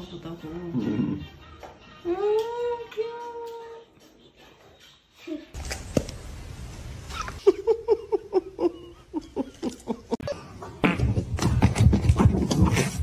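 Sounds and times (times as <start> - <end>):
person laughing: 7.1 - 10.5.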